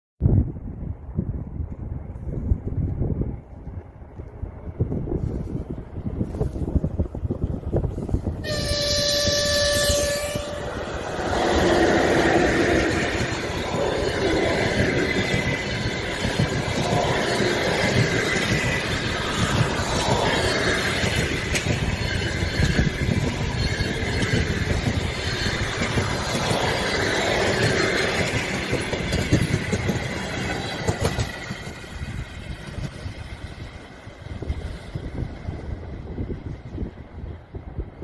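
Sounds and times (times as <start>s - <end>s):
train wheels rushing on rails: 1.4s - 38.0s
locomotive horn: 8.4s - 11.2s.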